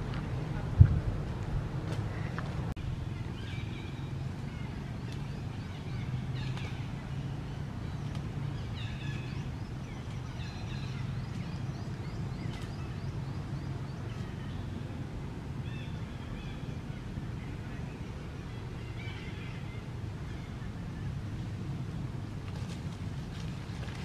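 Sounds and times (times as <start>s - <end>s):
steady low rumble: 0.0s - 24.0s
birds chirping: 2.1s - 21.3s.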